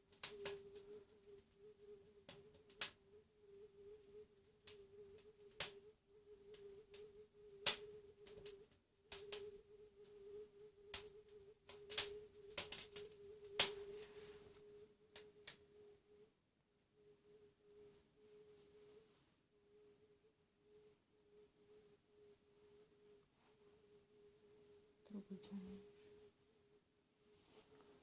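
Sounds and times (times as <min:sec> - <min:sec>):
faint steady hum: 0:00.0 - 0:28.0
fire crackling and popping: 0:00.1 - 0:03.0, 0:04.4 - 0:05.8, 0:07.6 - 0:09.5, 0:10.9 - 0:14.1.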